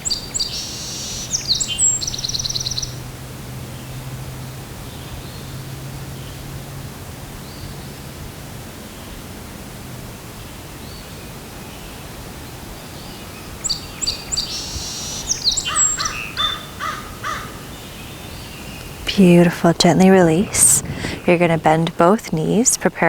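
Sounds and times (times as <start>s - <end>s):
birds chirping and trilling: 13.7s - 22.7s.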